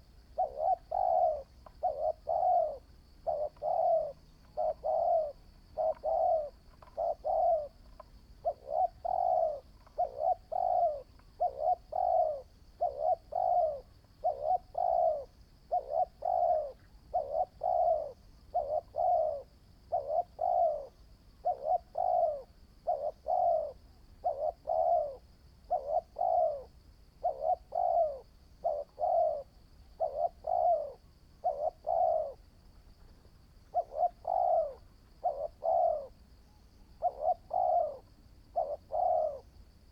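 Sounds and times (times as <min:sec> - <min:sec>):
dove cooing: 0:00.0 - 0:36.2, 0:36.8 - 0:39.9
faint high-pitched whine: 0:00.0 - 0:39.9.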